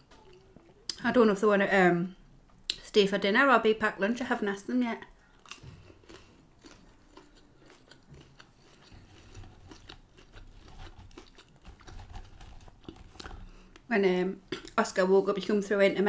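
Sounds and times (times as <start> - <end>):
quiet chewing: 5.1 - 13.9.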